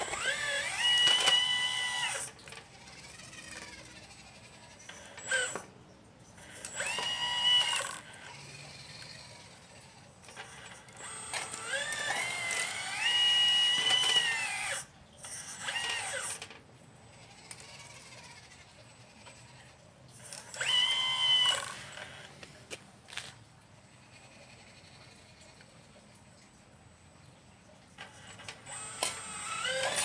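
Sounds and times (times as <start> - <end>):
electric hydraulic pump whining: 0.0 - 5.7, 6.4 - 22.5, 28.0 - 30.0.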